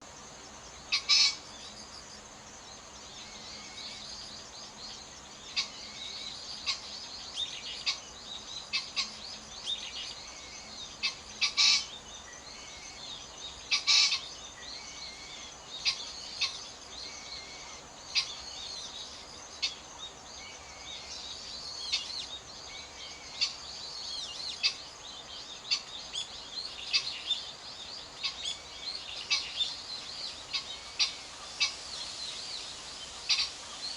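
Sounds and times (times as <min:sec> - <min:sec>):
small birds chirping: 0:00.0 - 0:33.9
pheasant crowing: 0:00.9 - 0:01.4, 0:11.0 - 0:11.9, 0:13.7 - 0:14.2.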